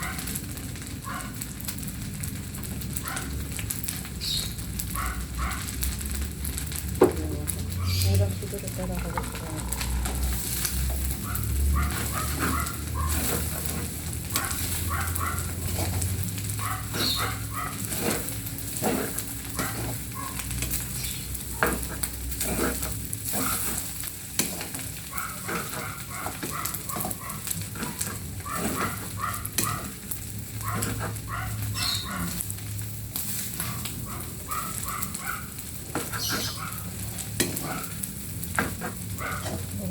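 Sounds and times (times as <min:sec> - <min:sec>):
food sizzling in a pan: 0:00.0 - 0:39.9
spatula scraping a pan: 0:09.0 - 0:39.9.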